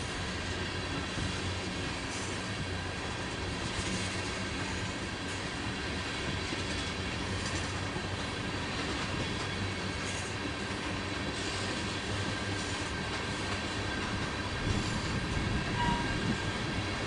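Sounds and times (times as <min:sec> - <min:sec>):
freight train rumbling past: 0:00.0 - 0:17.0
faint wheel squeal: 0:14.8 - 0:16.5.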